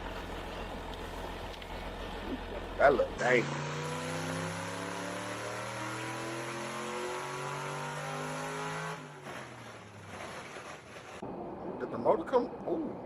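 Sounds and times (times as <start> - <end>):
vehicle engine accelerating: 0.0 - 11.9
road noise: 0.0 - 13.0.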